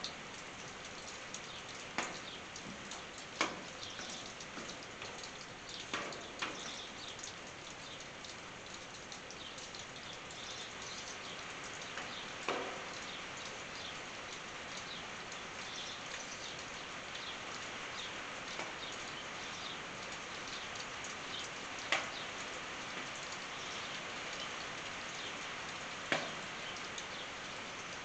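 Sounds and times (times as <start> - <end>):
rain on a tin roof: 0.0 - 28.0.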